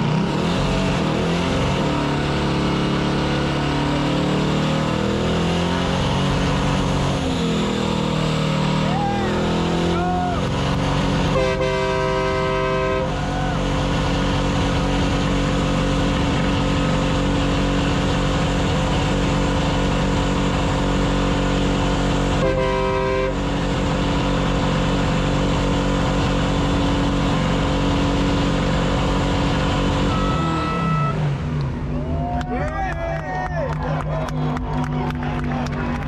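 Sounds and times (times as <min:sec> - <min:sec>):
vehicle engine: 0:00.0 - 0:36.0
horn blasts: 0:11.1 - 0:13.6, 0:22.2 - 0:23.8, 0:29.7 - 0:31.6.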